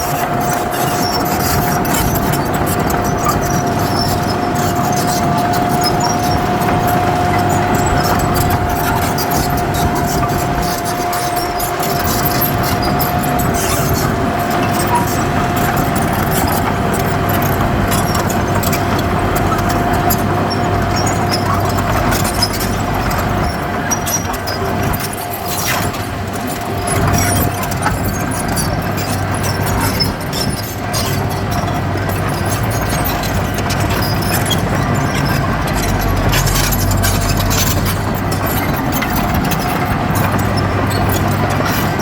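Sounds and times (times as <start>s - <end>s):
diesel machinery running: 0.0s - 42.0s.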